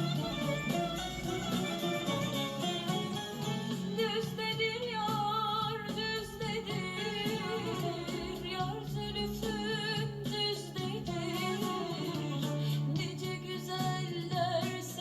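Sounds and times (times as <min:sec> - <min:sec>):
instrumental accompaniment: 0:00.0 - 0:15.0
woman singing folk song: 0:03.4 - 0:15.0.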